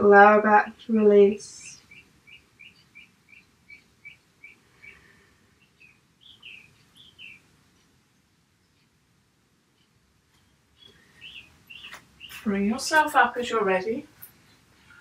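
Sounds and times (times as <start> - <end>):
small bird chirping: 1.2 - 7.9, 9.8 - 15.0.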